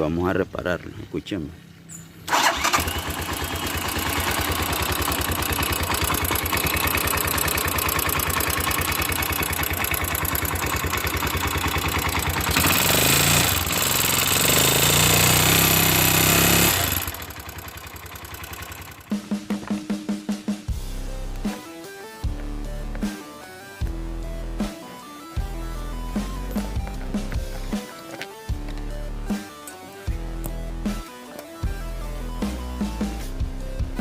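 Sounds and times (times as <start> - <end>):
motorcycle engine running: 2.3 - 19.8, 25.4 - 27.8.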